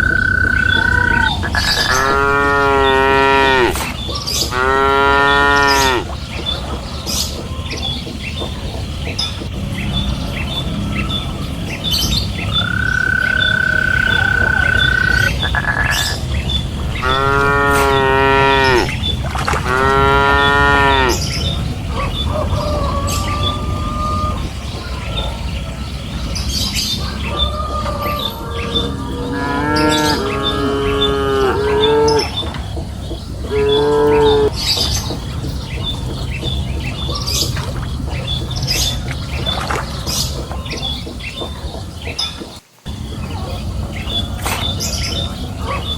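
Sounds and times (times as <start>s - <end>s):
cattle mooing: 0.0s - 3.8s, 4.5s - 6.2s, 16.8s - 19.0s, 19.6s - 21.2s, 28.2s - 32.4s, 33.5s - 34.5s.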